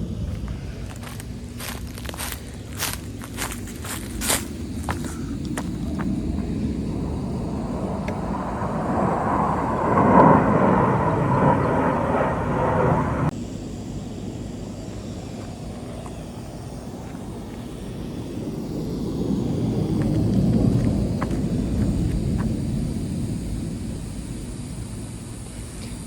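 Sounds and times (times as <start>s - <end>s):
low rumble: 0.0s - 13.4s
jet flying over: 0.0s - 26.0s.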